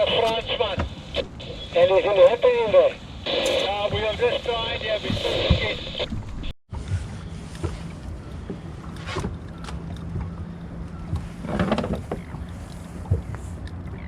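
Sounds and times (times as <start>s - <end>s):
boat engine idling: 7.0s - 14.0s.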